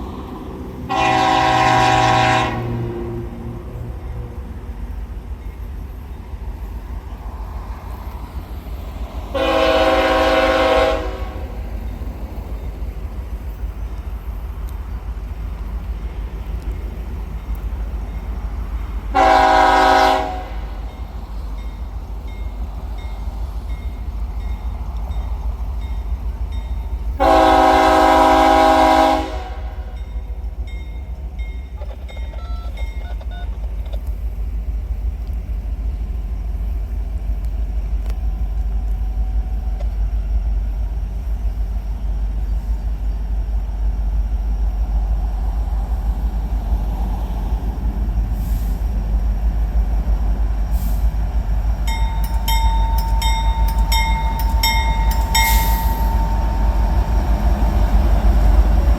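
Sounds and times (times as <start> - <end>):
locomotive air horn: 0.9 - 3.4, 9.3 - 11.6, 19.1 - 20.9, 27.2 - 30.0, 53.2 - 57.0
steady low rumble: 33.6 - 58.9.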